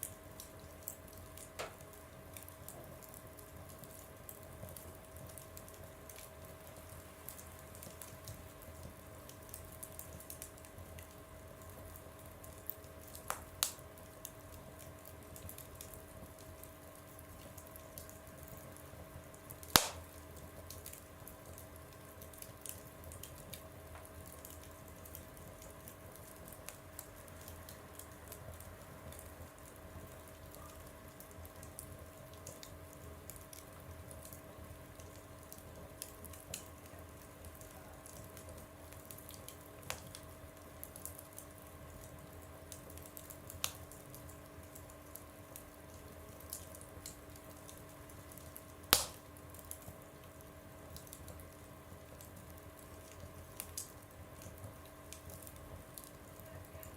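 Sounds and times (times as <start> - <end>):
faint steady hum: 0.0 - 56.9
wood fire crackling: 0.0 - 56.9
loud sharp crack: 19.8 - 20.1, 48.9 - 49.2.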